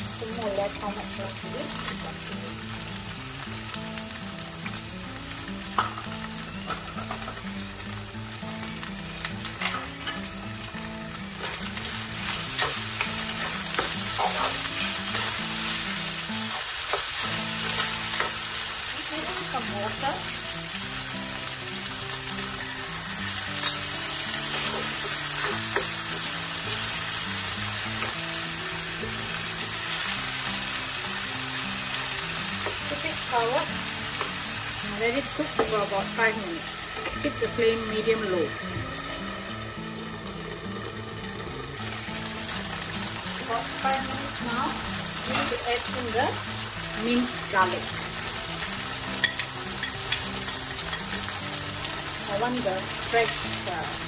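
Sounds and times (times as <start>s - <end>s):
food sizzling in oil: 0.0s - 54.0s
spatula clicking and scraping pan: 12.2s - 15.7s.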